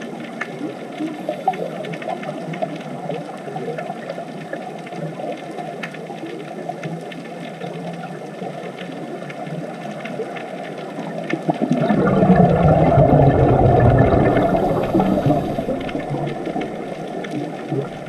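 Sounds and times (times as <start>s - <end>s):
faint clicks and crackles: 0.0s - 18.0s
underwater rushing water: 8.4s - 18.0s.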